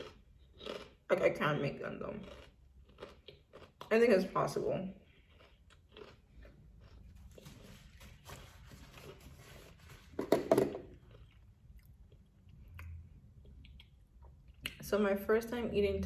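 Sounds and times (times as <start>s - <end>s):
loud crunchy bite: 0.0s - 1.0s, 5.3s - 7.0s
soft chewing: 0.0s - 1.1s, 2.2s - 4.2s, 4.9s - 10.2s, 10.8s - 14.8s.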